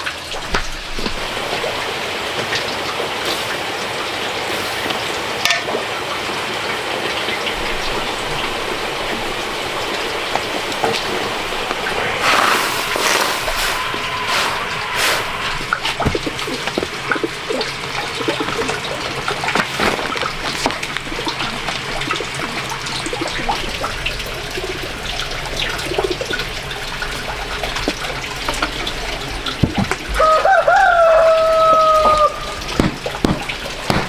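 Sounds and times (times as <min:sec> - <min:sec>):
water splashing and trickling: 0:00.0 - 0:34.0
rooster crowing: 0:30.2 - 0:32.6.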